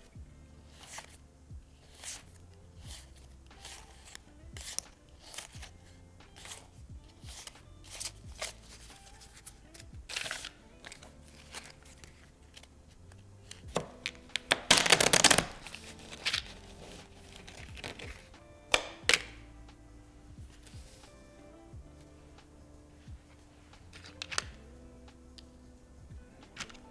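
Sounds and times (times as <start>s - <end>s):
soft background music: 0.0s - 26.9s
packaging crinkling tear: 1.8s - 19.4s, 23.9s - 24.5s
game pieces clicking and tapping: 13.1s - 19.4s, 23.9s - 24.6s.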